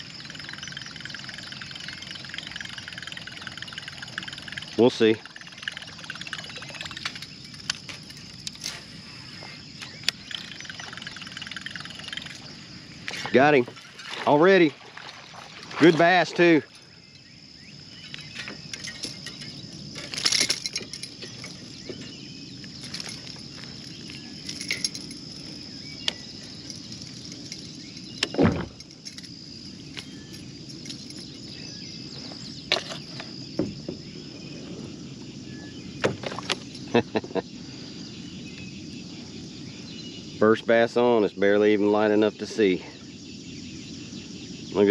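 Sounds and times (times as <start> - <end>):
faint chirps: 0.0 - 28.4
insects droning: 0.0 - 44.9
handling clicks and knocks: 18.0 - 31.4.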